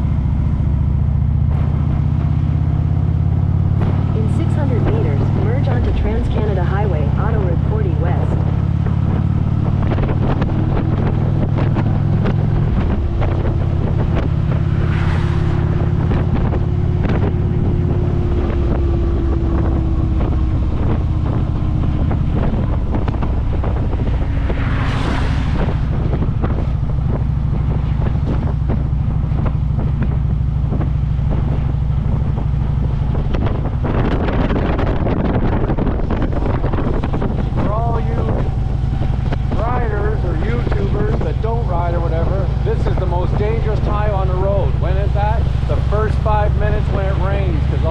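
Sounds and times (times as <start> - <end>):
motorcycle engine cruising: 0.0 - 47.9
wind buffeting microphone: 0.0 - 47.9
brief whooshes: 14.6 - 16.5, 24.0 - 26.9.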